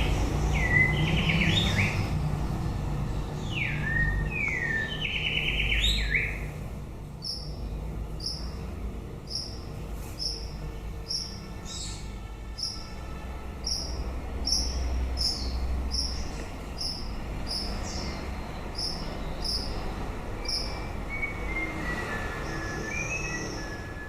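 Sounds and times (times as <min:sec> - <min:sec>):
bird whistling notes: 0:20.4 - 0:24.0.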